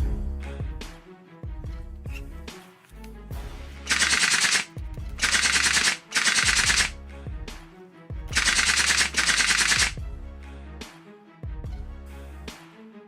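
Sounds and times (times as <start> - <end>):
background music: 0.0 - 13.0
automatic gunfire bursts: 3.9 - 6.9, 8.3 - 10.0.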